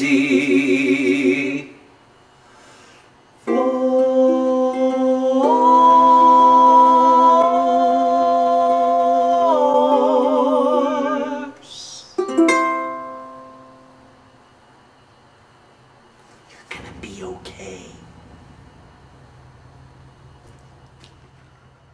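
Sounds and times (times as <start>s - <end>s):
two voices singing in harmony: 0.0s - 1.9s, 3.4s - 12.2s.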